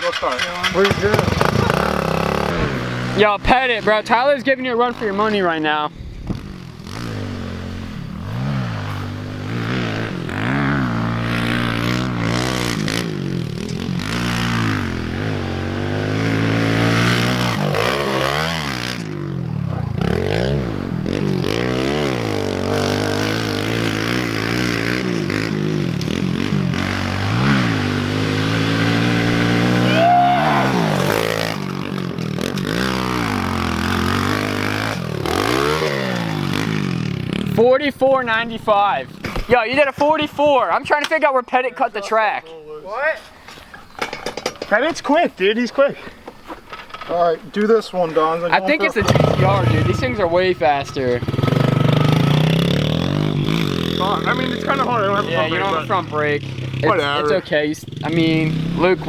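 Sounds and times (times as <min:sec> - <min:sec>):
pit bike engine revving: 0:00.0 - 0:41.0, 0:47.9 - 0:59.0.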